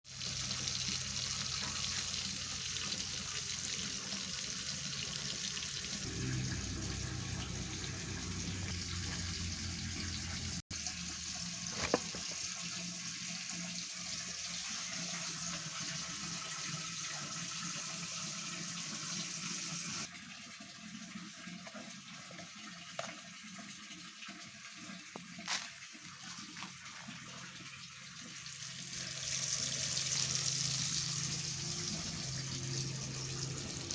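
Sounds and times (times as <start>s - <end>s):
low hum: 6.0s - 10.6s.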